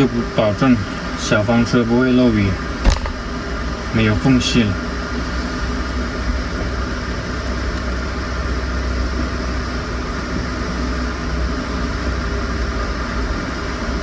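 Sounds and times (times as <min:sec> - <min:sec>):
machine humming with hiss: 0:00.0 - 0:14.0.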